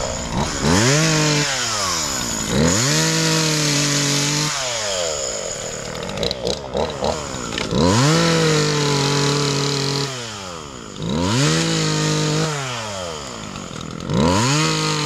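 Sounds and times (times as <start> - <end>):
chainsaw revving and cutting wood: 0.0 - 15.0.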